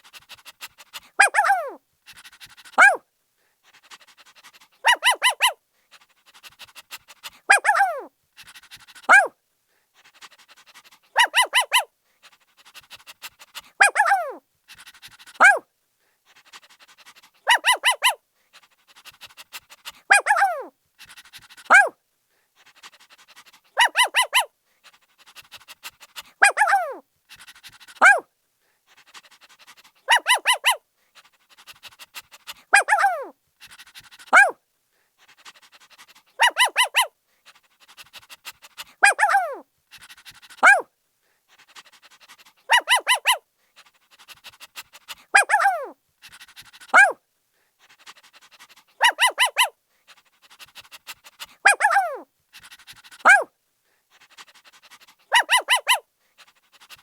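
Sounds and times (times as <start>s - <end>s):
puppy panting: 0.0s - 3.0s, 3.6s - 22.0s, 22.6s - 57.0s
puppy barking: 1.1s - 1.8s, 2.8s - 3.0s, 4.8s - 5.6s, 7.5s - 8.1s, 9.1s - 9.3s, 11.1s - 11.9s, 13.8s - 14.4s, 15.4s - 15.6s, 17.4s - 18.2s, 20.1s - 20.7s, 21.7s - 21.9s, 23.8s - 24.5s, 26.4s - 27.0s, 28.0s - 28.2s, 30.0s - 30.8s, 32.7s - 33.3s, 34.3s - 34.6s, 36.4s - 37.1s, 39.0s - 39.6s, 40.6s - 40.9s, 42.7s - 43.4s, 45.3s - 46.0s, 46.9s - 47.2s, 49.0s - 49.7s, 51.6s - 52.2s, 53.2s - 53.5s, 55.3s - 56.0s.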